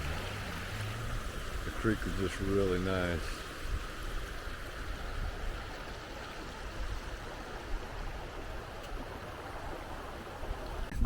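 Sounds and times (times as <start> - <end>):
creek water rushing: 0.0 - 11.0
wind rumble on microphone: 3.4 - 11.0.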